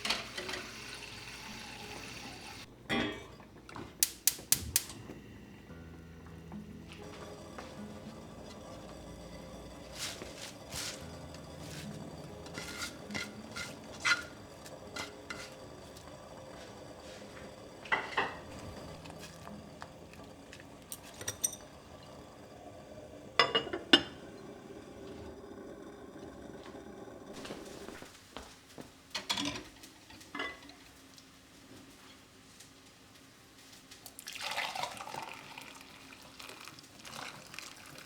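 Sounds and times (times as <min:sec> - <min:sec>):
dishes and cutlery clinking: 0:02.8 - 0:04.0, 0:09.9 - 0:21.9, 0:23.4 - 0:24.3, 0:29.2 - 0:30.8.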